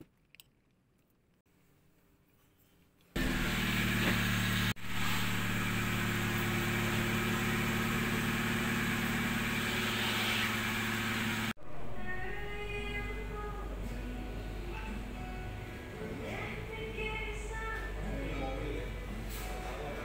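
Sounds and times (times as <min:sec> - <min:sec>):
vehicle engine idling: 0:03.2 - 0:11.6.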